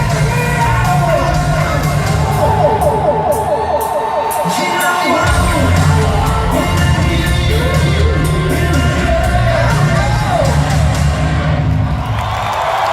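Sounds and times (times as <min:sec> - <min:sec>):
hard rock band playing: 0:02.1 - 0:11.3
person singing: 0:02.3 - 0:08.6.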